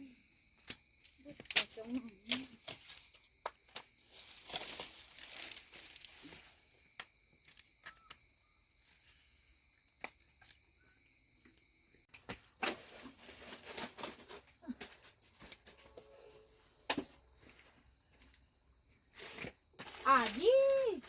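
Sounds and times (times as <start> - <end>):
dry rustling and crinkling: 3.8 - 6.7, 12.5 - 16.0.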